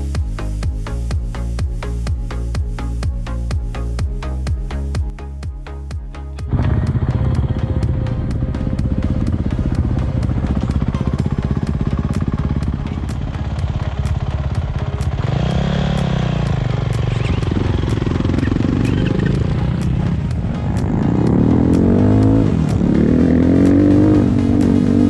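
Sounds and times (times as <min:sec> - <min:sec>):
motorcycle engine revving: 0:06.4 - 0:25.0.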